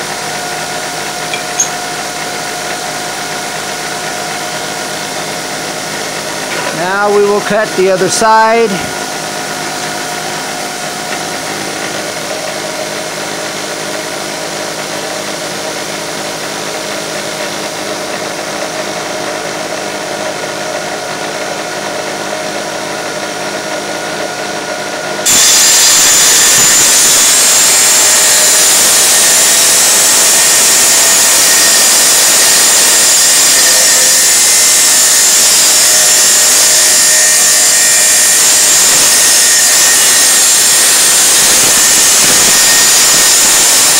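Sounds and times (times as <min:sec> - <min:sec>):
tile saw cutting tile: 0:25.2 - 0:43.9.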